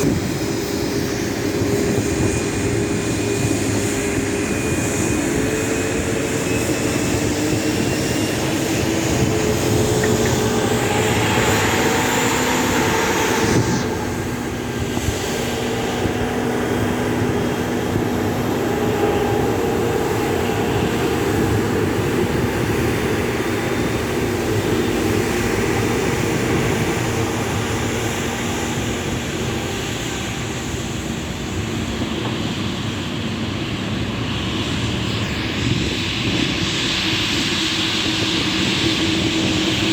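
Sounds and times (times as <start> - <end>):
jet engines whining hum: 0.0 - 39.9.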